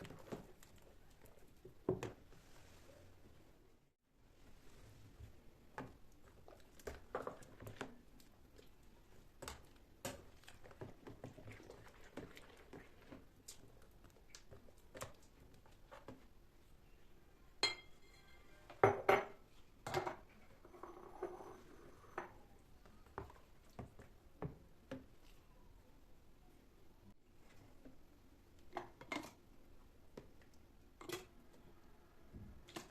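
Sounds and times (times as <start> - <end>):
dishes and utensils clinking: 17.6 - 22.4.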